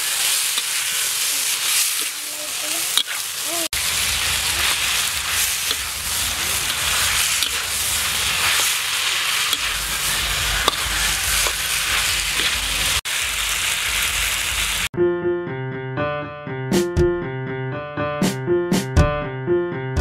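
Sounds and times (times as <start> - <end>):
metal spatula scraping a pan: 0.0 - 3.4, 4.1 - 13.0
meat sizzling in a wok: 0.0 - 14.9
piano music: 14.9 - 20.0.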